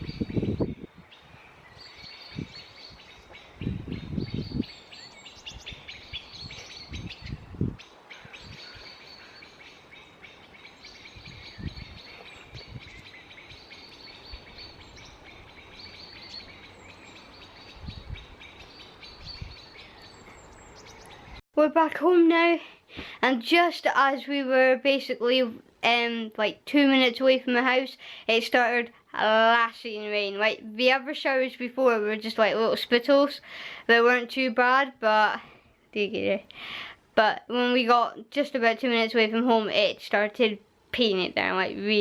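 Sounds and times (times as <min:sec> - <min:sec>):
songbird twittering: 0:00.0 - 0:21.4.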